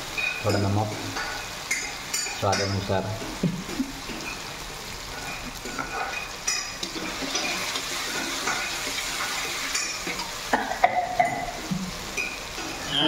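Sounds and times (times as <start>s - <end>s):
curry sizzling in a pan: 0.0s - 13.0s
spoon clinking against pan: 0.2s - 2.8s.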